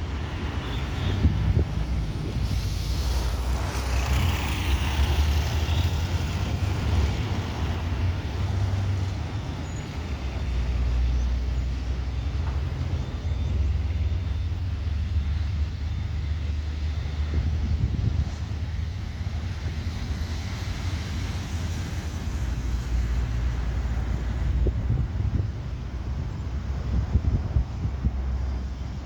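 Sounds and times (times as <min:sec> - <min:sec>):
wind on microphone: 0:00.0 - 0:11.1, 0:15.4 - 0:29.0
jet airliner rumble: 0:00.0 - 0:29.0.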